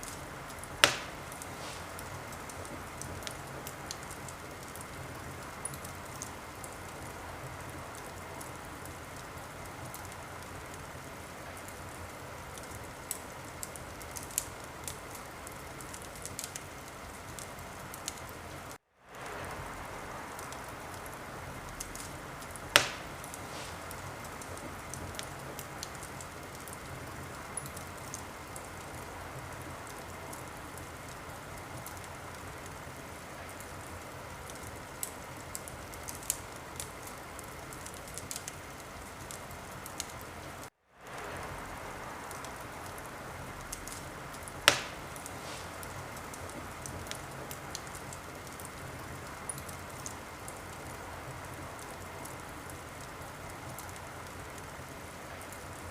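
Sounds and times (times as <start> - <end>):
loud fire pops: 0.0 - 18.3, 19.1 - 32.8, 41.0 - 50.7
wood fire crackling: 0.0 - 55.9.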